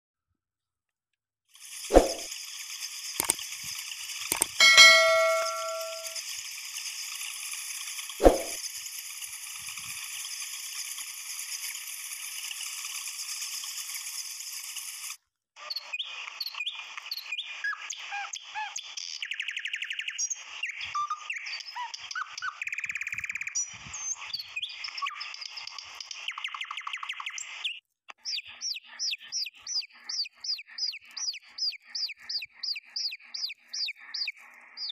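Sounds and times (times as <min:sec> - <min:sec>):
bird repeating falling chirp: 0:04.6 - 0:06.2.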